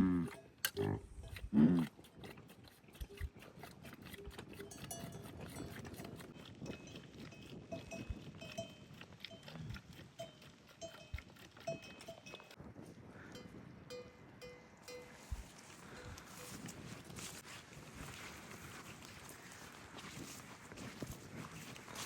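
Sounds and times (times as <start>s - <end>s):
low animal grunt: 0.0s - 2.0s
livestock bells clinking: 4.6s - 9.6s, 10.2s - 12.6s, 13.4s - 16.9s.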